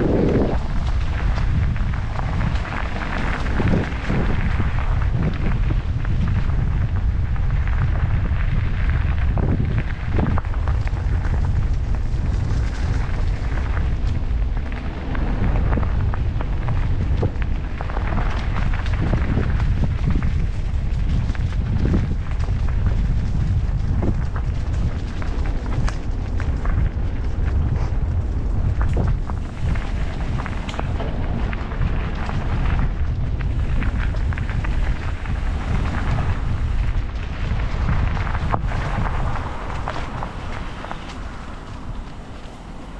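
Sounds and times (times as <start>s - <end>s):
wind buffeting microphone: 0.0s - 42.9s
tyres clicking on road: 38.5s - 42.9s.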